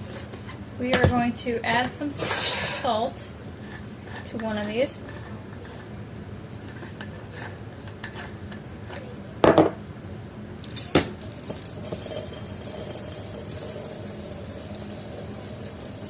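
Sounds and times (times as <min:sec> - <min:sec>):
glass grinder clinking and rattling: 0:11.2 - 0:16.0.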